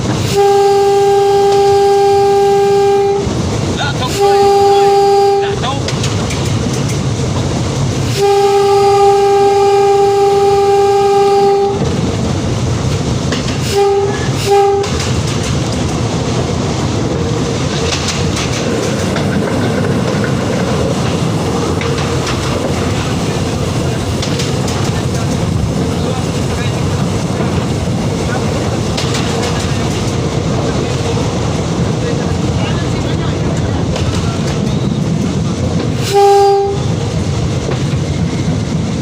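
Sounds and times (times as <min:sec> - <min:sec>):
train rumble and wheel clatter: 0:00.0 - 0:39.0
train horn blasts: 0:00.2 - 0:03.4, 0:04.1 - 0:05.6, 0:08.0 - 0:11.9, 0:13.6 - 0:15.1, 0:36.0 - 0:37.0.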